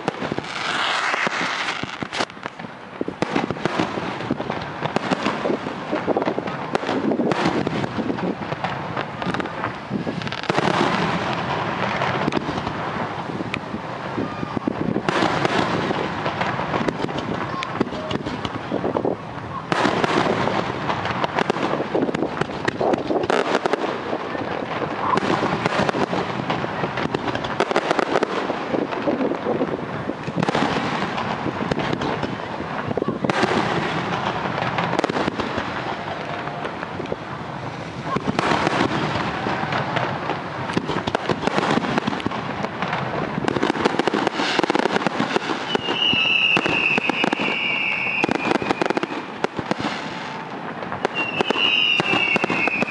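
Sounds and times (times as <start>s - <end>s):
fireworks bursting and crackling: 0.0s - 52.9s
high whistling tone: 45.7s - 49.0s, 51.1s - 52.9s.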